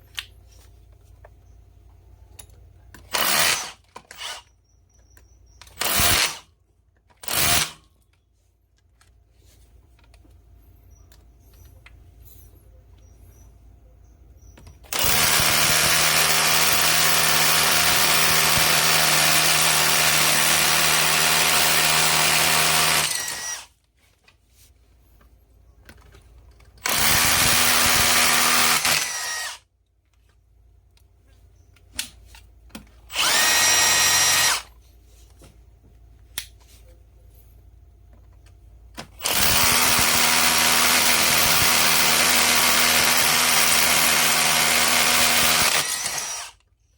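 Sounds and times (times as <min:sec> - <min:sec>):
rotary hammer running: 0:26.8 - 0:29.6, 0:33.1 - 0:34.7, 0:39.2 - 0:46.6.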